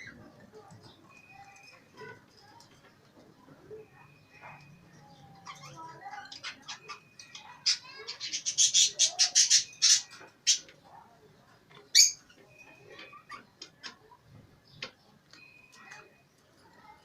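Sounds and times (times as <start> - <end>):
birds chirping: 0.0 - 17.0
bird squawk: 5.4 - 10.7.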